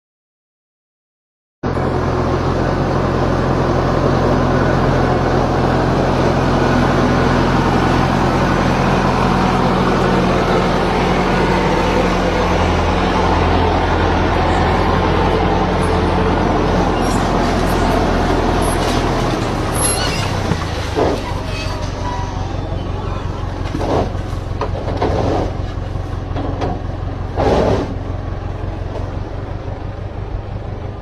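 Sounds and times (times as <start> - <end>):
tractor engine droning: 1.6 - 31.0.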